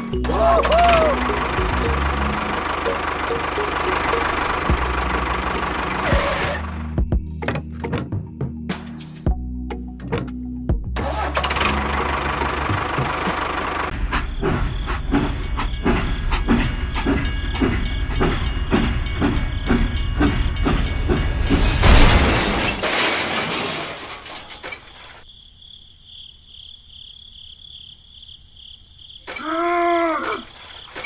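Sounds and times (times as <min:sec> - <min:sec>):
rhythmic mechanical chugging: 0:00.0 - 0:07.0, 0:11.0 - 0:22.3
insect-like chirping: 0:25.2 - 0:31.0.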